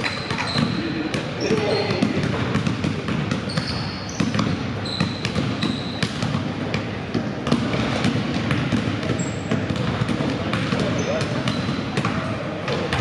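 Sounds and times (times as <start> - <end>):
sneaker squeaks: 0.0 - 2.7, 3.3 - 6.4, 9.0 - 9.8, 10.7 - 12.0
background murmur: 0.0 - 13.0
basketballs bouncing on gym floor: 0.0 - 13.0.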